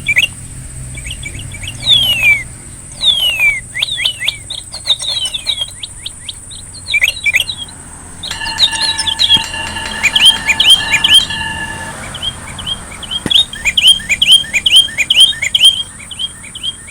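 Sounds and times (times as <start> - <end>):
small birds chirping: 0.0 - 16.9
steady whistled tone: 1.9 - 4.4, 8.2 - 16.9.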